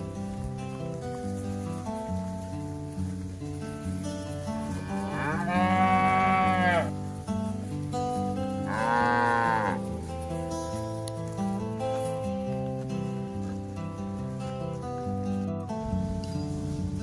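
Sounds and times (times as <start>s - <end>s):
background music: 0.0s - 17.0s
cow mooing: 4.6s - 7.0s, 8.6s - 10.0s.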